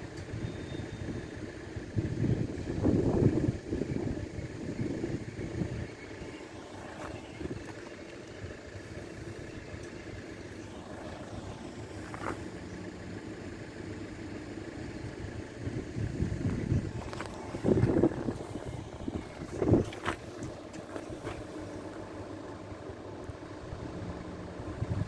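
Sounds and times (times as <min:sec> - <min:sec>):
low hum of standing vehicle: 0:00.0 - 0:25.0.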